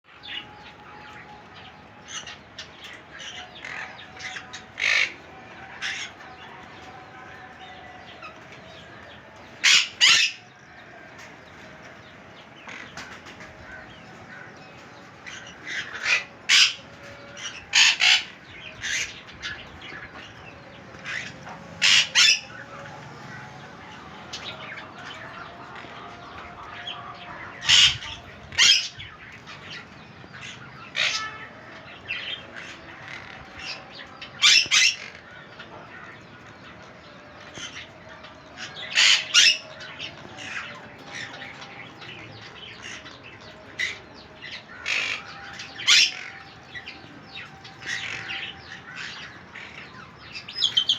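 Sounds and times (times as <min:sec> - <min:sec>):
birds chattering: 0:00.1 - 0:50.9
parrots squawking: 0:02.1 - 0:06.3, 0:09.6 - 0:10.5, 0:15.4 - 0:19.6, 0:21.0 - 0:22.7, 0:23.9 - 0:29.8, 0:30.5 - 0:31.5, 0:32.4 - 0:35.3, 0:38.9 - 0:41.3, 0:44.7 - 0:50.9.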